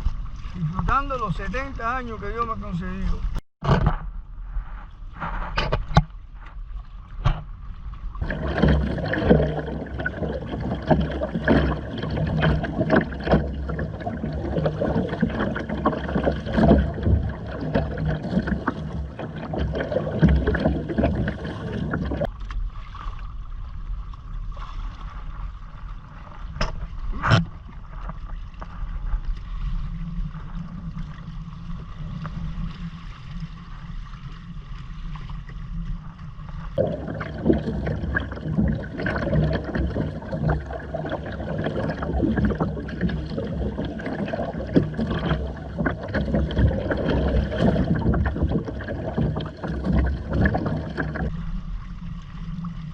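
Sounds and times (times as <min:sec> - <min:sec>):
water splashing against kayak hull: 0:00.0 - 0:52.9.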